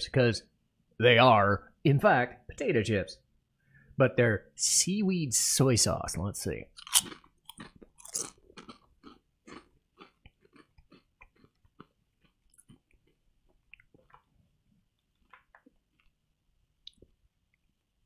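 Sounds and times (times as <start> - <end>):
crunching potato chips: 6.8 - 14.4.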